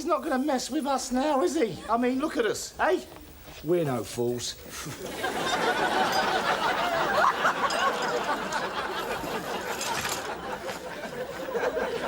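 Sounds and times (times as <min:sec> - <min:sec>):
audience laughing: 0:04.7 - 0:12.0.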